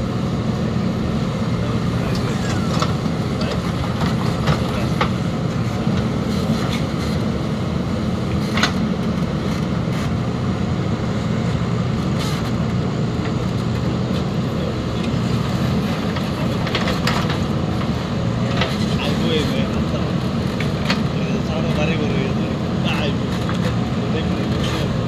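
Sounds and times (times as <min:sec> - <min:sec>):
heavy diesel engine running: 0:00.0 - 0:25.0.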